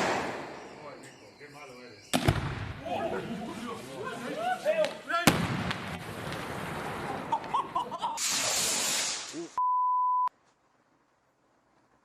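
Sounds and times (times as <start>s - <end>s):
loud high hiss: 8.2s - 9.6s
censor bleep: 9.6s - 10.3s.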